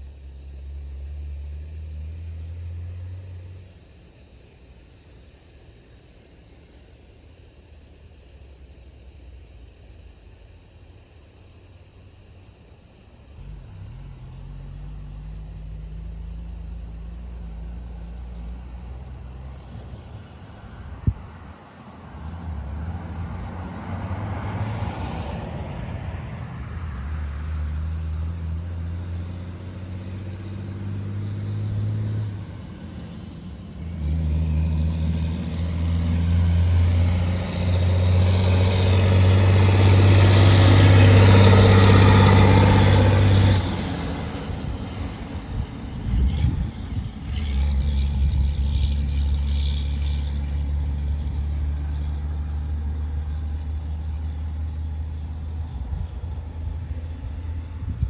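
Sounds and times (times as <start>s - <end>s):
diesel truck engine under load: 22.3s - 58.0s.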